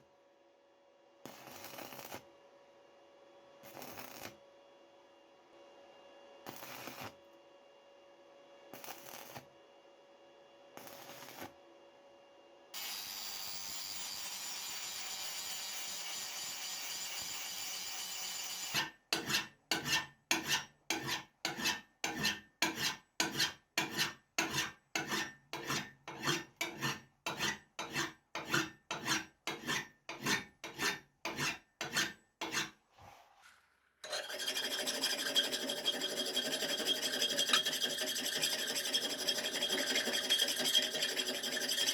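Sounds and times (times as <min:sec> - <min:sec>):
hand file scraping metal: 0:18.6 - 0:32.8, 0:34.0 - 0:41.9.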